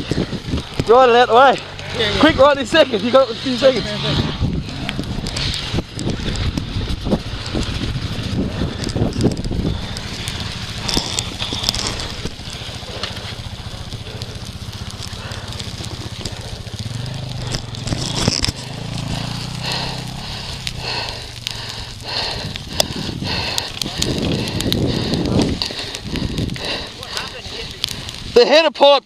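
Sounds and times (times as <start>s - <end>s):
dirt bike engine running: 0.0s - 28.4s
knocks and crackling: 0.0s - 28.5s.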